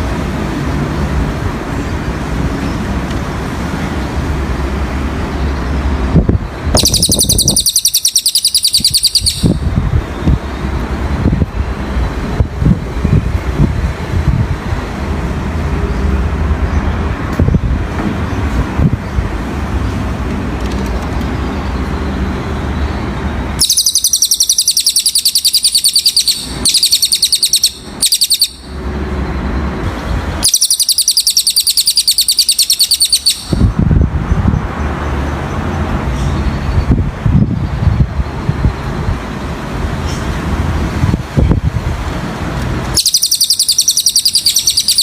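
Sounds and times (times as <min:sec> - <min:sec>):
low road traffic rumble: 0:00.0 - 0:45.0
bird singing fast trill: 0:06.8 - 0:09.7, 0:21.6 - 0:28.8, 0:30.4 - 0:33.7, 0:43.0 - 0:45.0.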